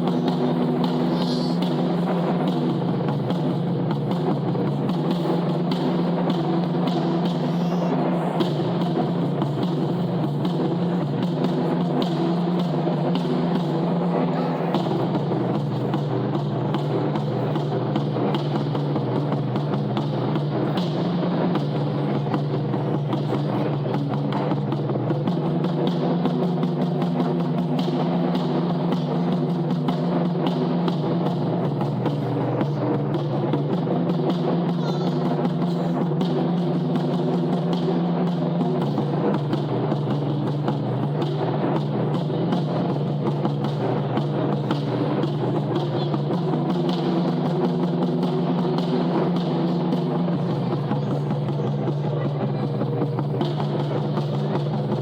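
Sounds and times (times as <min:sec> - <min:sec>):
taiko drums playing: 0:00.0 - 0:55.0.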